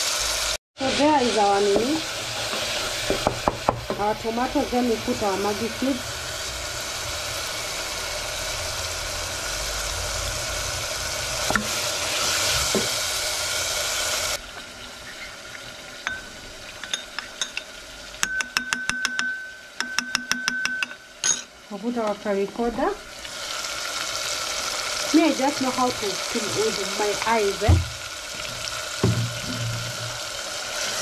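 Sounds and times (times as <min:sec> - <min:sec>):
tomatoes sizzling in a pot: 0:00.0 - 0:31.0
wooden spoon knocking a pot: 0:03.1 - 0:04.1, 0:29.0 - 0:30.2
metal spoon clinking a ceramic bowl: 0:16.0 - 0:21.5.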